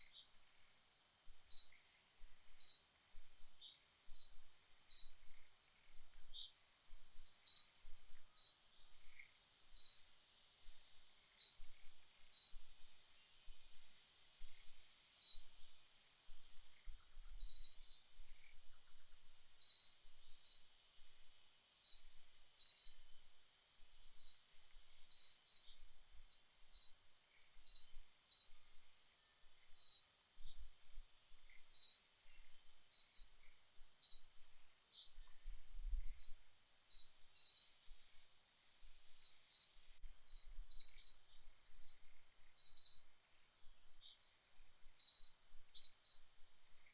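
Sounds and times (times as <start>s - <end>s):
small bird chirping: 0.0s - 0.7s, 1.3s - 21.1s, 21.8s - 23.3s, 24.0s - 46.9s
faint high hiss: 0.0s - 46.9s.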